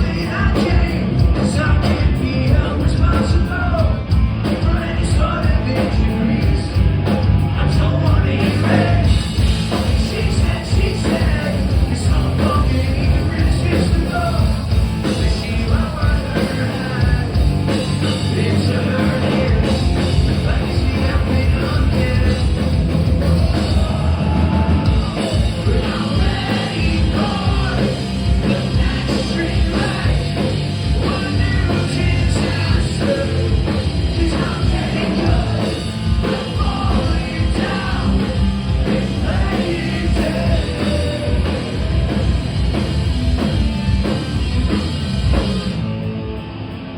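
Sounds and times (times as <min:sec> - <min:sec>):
singer singing and shouting: 0:00.0 - 0:42.9
punk rock band playing: 0:00.0 - 0:46.9.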